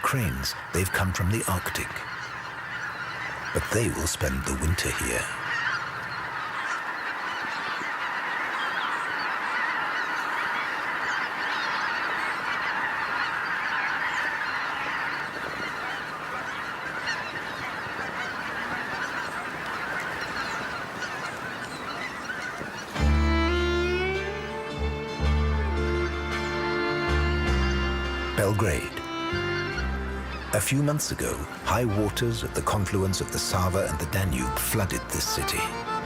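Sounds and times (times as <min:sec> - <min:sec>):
flock of geese honking: 0:00.0 - 0:36.0
loud music: 0:23.0 - 0:30.4.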